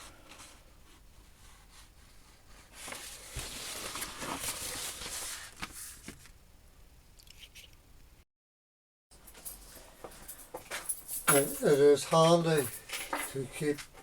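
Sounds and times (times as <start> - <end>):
paper rustling and crinkling: 2.5 - 6.4.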